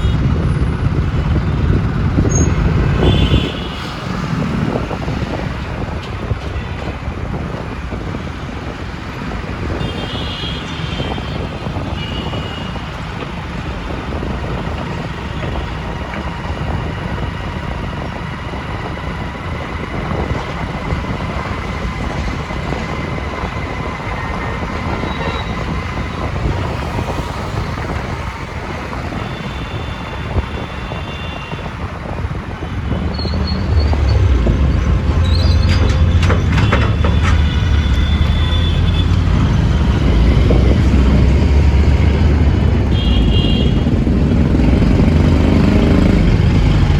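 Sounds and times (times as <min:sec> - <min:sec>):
traffic rumble: 0:00.0 - 0:46.9.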